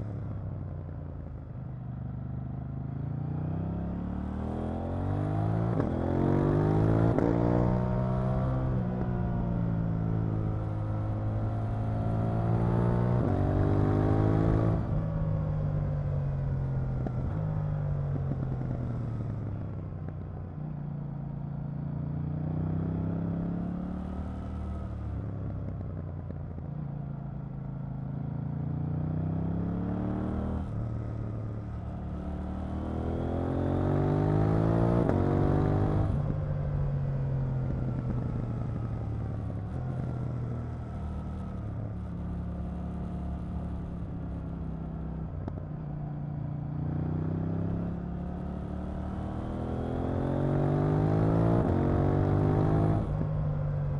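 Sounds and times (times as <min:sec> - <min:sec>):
motorcycle engine revving: 0:28.1 - 0:46.0, 0:46.6 - 0:53.9.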